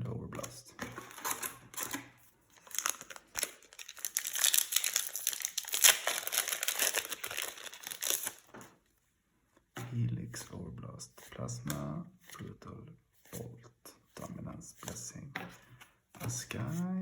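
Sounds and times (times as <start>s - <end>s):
plastic wrapper crinkling and tearing: 1.1s - 8.5s.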